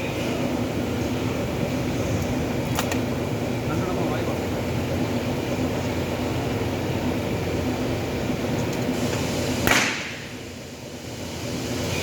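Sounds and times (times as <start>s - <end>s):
steady machine hum: 0.0s - 12.0s
stud welder crack: 9.6s - 10.2s.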